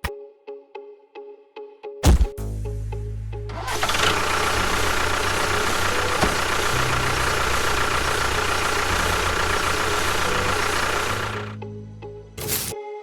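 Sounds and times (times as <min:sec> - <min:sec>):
small motor whining and grinding: 0:03.6 - 0:11.5.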